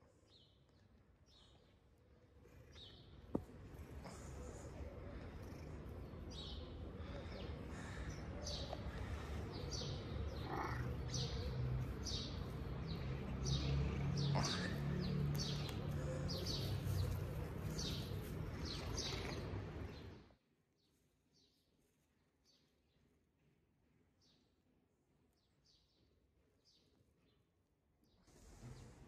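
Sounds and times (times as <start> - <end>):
small birds chirping: 0.0 - 21.7.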